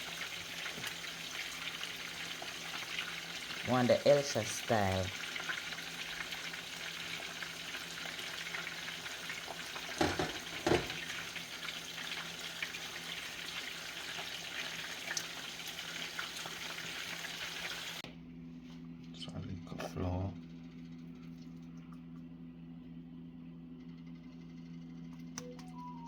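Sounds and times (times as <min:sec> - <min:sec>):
hot oil sizzling: 0:00.0 - 0:18.0.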